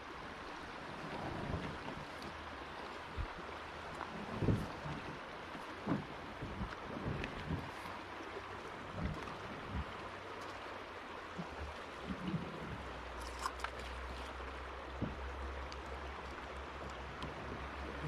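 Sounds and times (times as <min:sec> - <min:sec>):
river water rippling: 0:00.0 - 0:18.0
soft knocks: 0:15.0 - 0:15.3.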